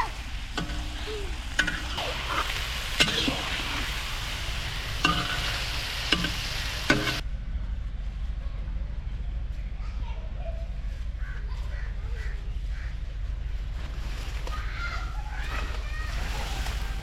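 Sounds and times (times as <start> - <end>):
food sizzling in a pot: 0.0 - 7.2.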